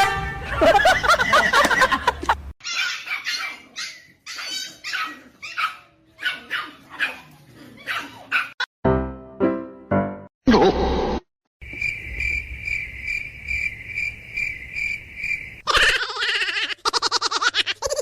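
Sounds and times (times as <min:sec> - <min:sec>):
dog barking and yipping: 0:02.6 - 0:08.7.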